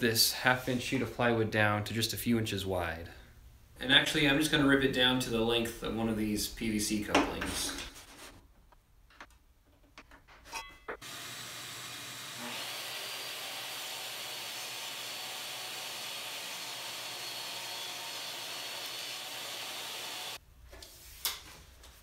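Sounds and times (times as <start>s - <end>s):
power saw cutting plywood: 11.0s - 20.4s.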